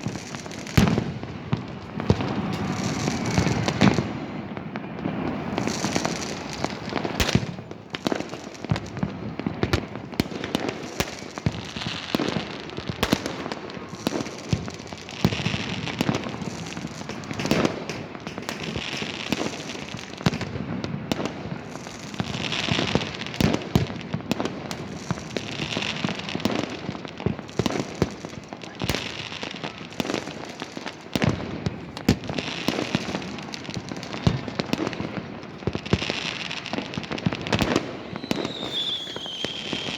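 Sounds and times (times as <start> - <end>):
fireworks bangs and pops: 0.0 - 39.9
fireworks crackling: 0.0 - 39.9.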